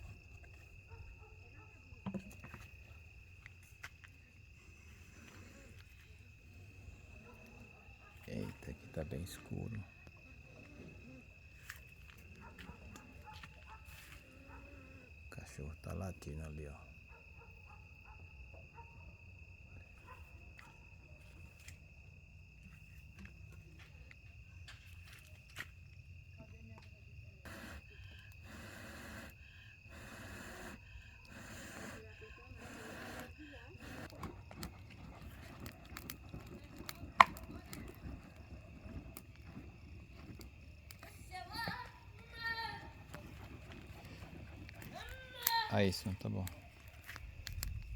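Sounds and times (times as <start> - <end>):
crickets trilling: 0.0 - 47.9
bonfire crackling: 2.7 - 16.0, 27.4 - 47.9
fire pops: 27.4 - 47.9.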